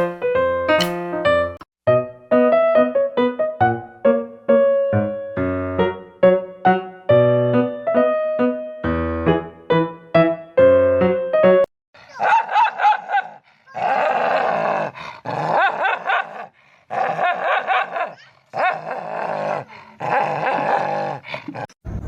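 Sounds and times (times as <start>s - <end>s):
dog growling: 13.7s - 21.8s.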